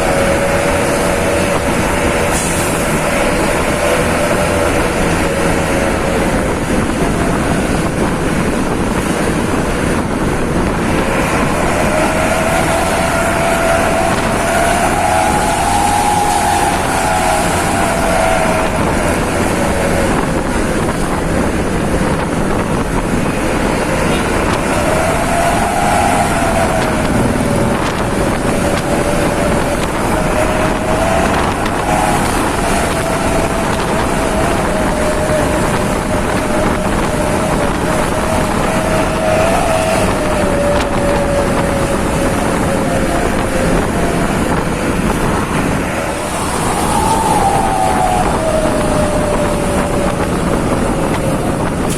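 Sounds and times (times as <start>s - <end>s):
wind noise on microphone: 0.0s - 51.9s.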